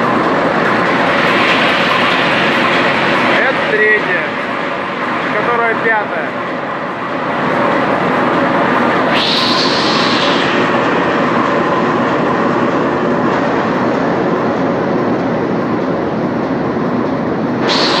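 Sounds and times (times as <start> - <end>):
high hiss: 9.1 - 11.2, 17.6 - 18.0.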